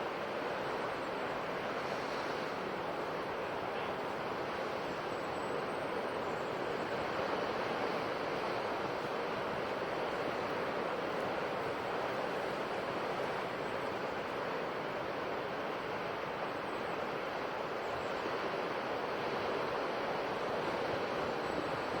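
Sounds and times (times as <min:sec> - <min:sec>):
ocean surf washing on shore: 0:00.0 - 0:22.0.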